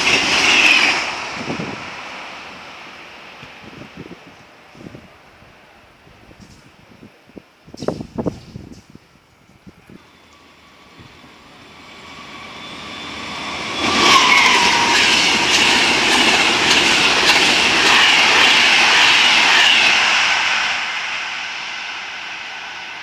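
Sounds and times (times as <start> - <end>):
electric train passing: 0.0 - 6.6, 7.8 - 23.0.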